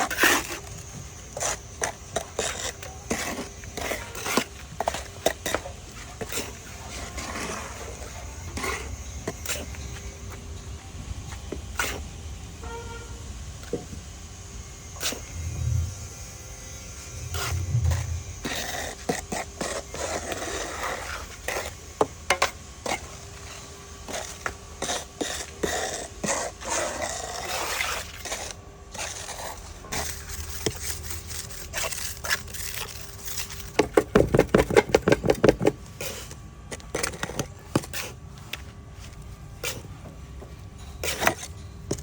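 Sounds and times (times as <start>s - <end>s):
hand tools scraping cement: 0.0s - 10.1s, 17.1s - 38.2s, 40.9s - 42.0s.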